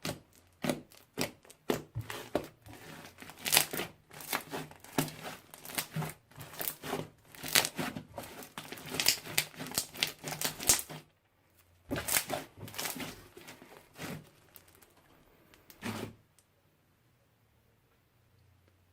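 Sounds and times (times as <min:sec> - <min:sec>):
slime squishing and clicking: 0:08.4 - 0:11.0.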